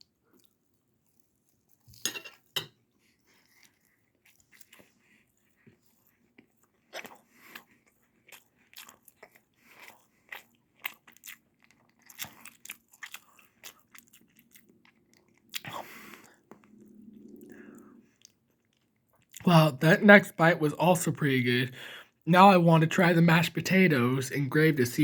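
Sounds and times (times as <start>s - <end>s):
child chewing wet mouth clicks: 6.4s - 16.7s
breath: 15.7s - 16.4s, 21.8s - 22.2s.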